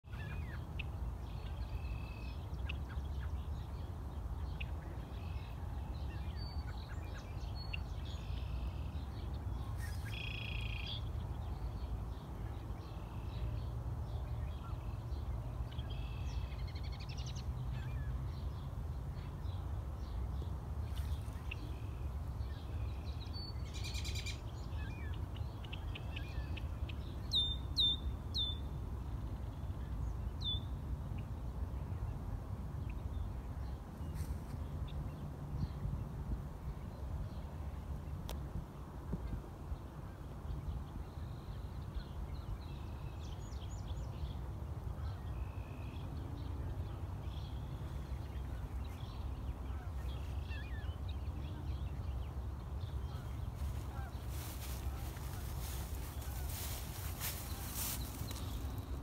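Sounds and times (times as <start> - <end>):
small birds calling and singing: 39.3 - 59.0.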